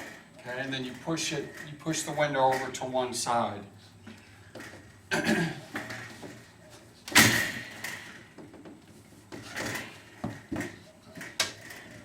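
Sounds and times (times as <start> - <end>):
loud clunk: 7.1 - 8.0.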